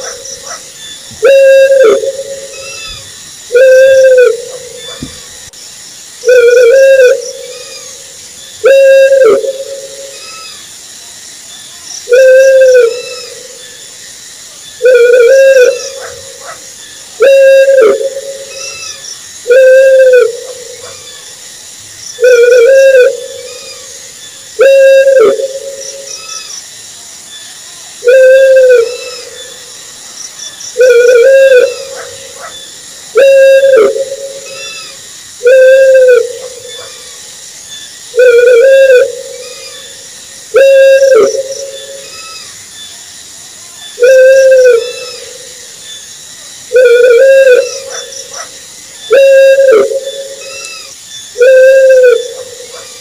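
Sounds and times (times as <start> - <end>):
owl hooting: 0.0 - 5.3, 6.2 - 10.6, 12.0 - 13.8, 14.8 - 21.3, 22.2 - 23.9, 24.6 - 26.5, 28.0 - 29.6, 30.8 - 37.2, 38.1 - 42.6, 44.0 - 45.6, 46.7 - 53.0.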